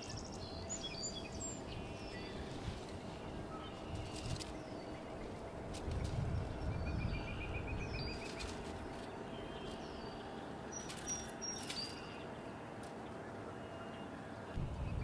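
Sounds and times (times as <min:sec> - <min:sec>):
small birds chirping: 0:00.0 - 0:15.0
low rumble: 0:14.6 - 0:15.0.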